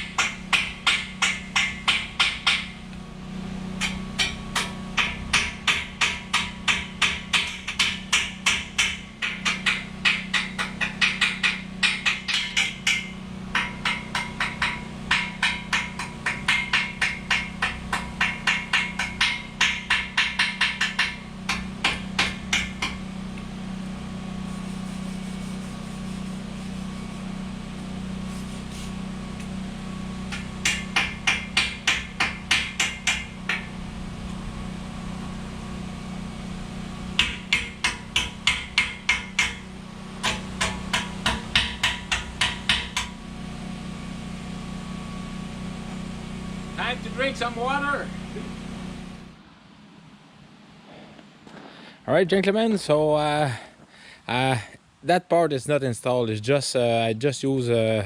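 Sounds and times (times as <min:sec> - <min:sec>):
hammer striking steel: 0:00.0 - 0:02.8, 0:03.8 - 0:23.1, 0:30.3 - 0:33.8, 0:37.2 - 0:43.2
steady low hum: 0:00.0 - 0:58.0.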